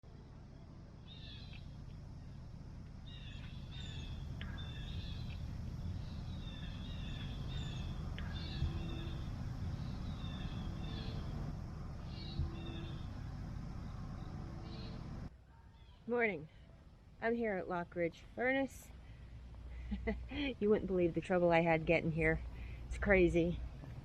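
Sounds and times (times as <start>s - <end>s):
steady low rumble: 0.0s - 15.5s, 16.1s - 24.0s
birds calling: 1.0s - 2.4s, 3.0s - 15.2s.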